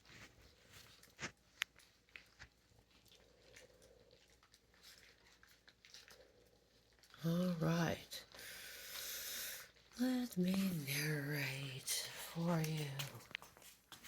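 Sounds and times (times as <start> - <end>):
puppies chewing and lapping food: 0.0 - 14.0.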